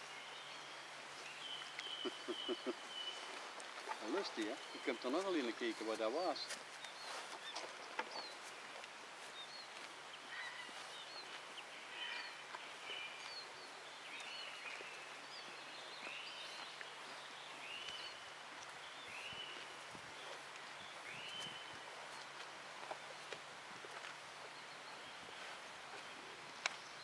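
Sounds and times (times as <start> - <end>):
birds chirping: 0.0 - 23.2
bird arching call: 1.9 - 2.9.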